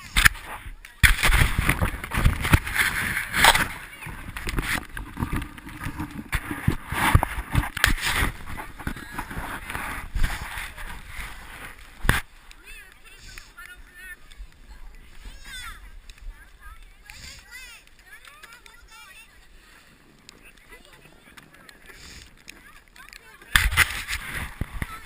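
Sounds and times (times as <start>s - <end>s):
wind buffeting microphone: 0.0s - 18.0s
snowboard scraping over snow: 0.0s - 25.0s.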